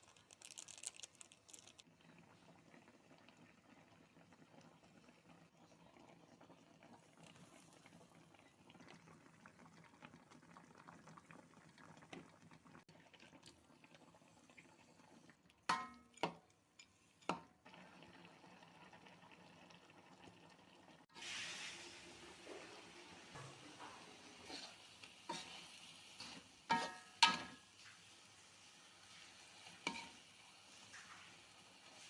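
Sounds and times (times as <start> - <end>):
sauce bubbling in a pan: 1.4 - 32.0.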